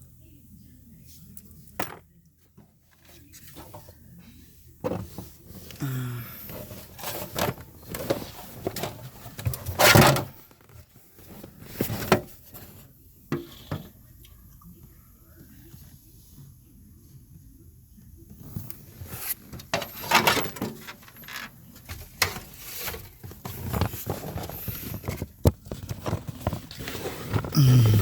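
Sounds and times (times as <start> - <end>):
scraping and rustling: 6.5 - 12.9, 18.4 - 27.5.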